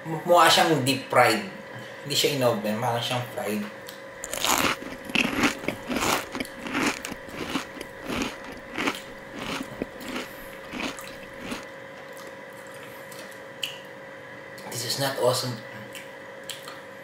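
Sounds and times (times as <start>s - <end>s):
man biting and chewing: 4.2s - 12.3s.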